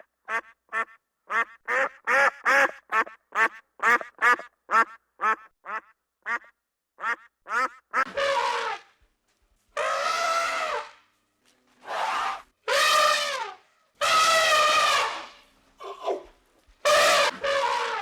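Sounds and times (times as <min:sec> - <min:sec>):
flamingos honking: 0:08.0 - 0:08.8, 0:09.8 - 0:10.9, 0:11.9 - 0:15.4, 0:16.8 - 0:18.0.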